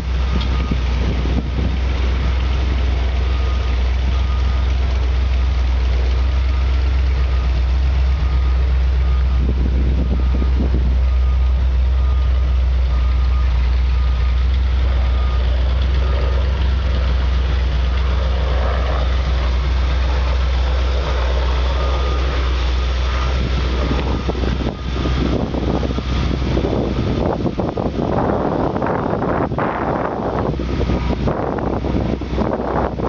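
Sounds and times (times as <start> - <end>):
wind gusts on microphone: 0.0 - 4.3, 7.3 - 12.2, 16.0 - 33.0
pickup engine idling: 0.0 - 33.0.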